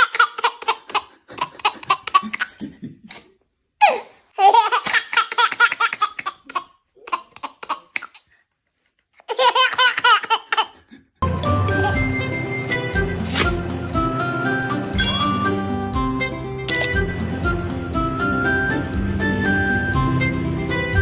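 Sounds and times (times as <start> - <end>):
baby giggling: 3.8 - 8.2, 9.3 - 10.8.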